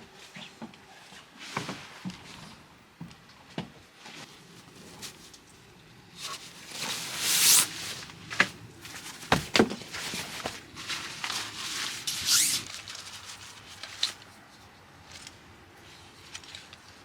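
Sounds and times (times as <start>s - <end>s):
rustling: 4.0s - 5.6s, 6.2s - 17.0s.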